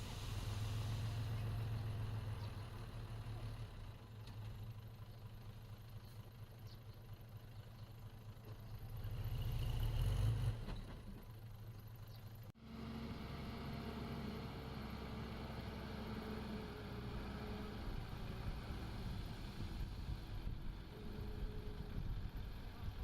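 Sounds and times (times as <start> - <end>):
earthmoving machine diesel engine: 0.0 - 23.0.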